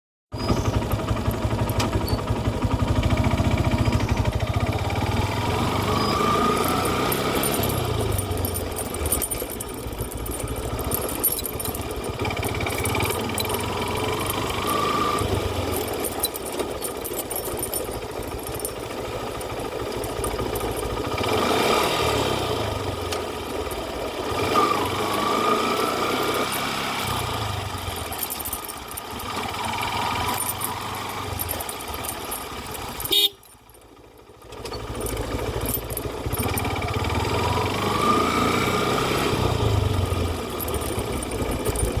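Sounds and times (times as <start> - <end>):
vehicle engines running: 0.4 - 42.0
short horn toots: 33.1 - 33.5.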